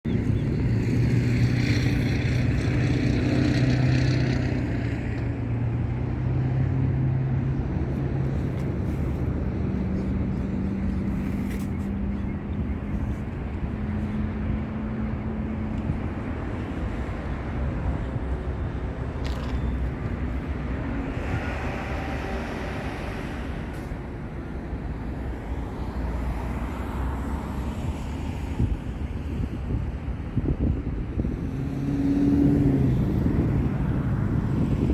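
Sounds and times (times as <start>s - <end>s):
aircraft engine drone: 0.1s - 26.0s.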